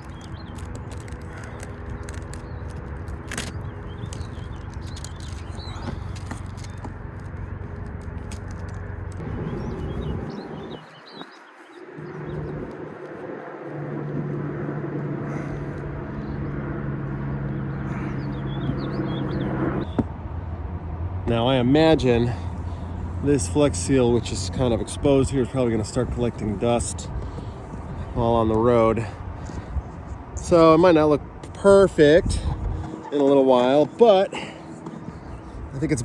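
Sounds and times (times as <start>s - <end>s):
vehicle engine hum: 0.0s - 36.0s
faint bird chirps: 9.4s - 12.5s.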